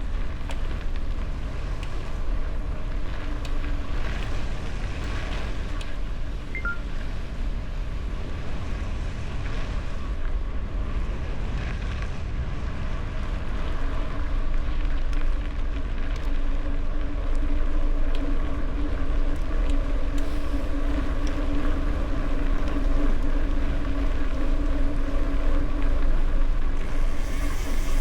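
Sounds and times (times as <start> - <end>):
bike tyre rumble on gravel: 0.0 - 28.0
wind rushing over microphone: 0.0 - 28.0
steady hum: 12.8 - 28.0.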